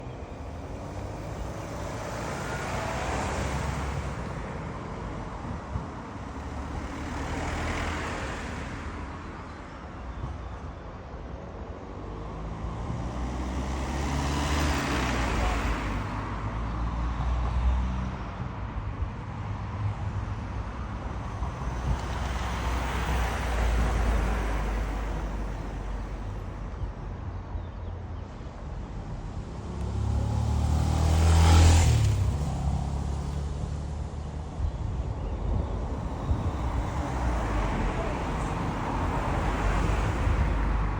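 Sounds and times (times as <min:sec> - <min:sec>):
low traffic rumble: 0:00.0 - 0:40.9
vehicles passing: 0:00.0 - 0:40.9
vehicle engine hum: 0:11.5 - 0:40.9.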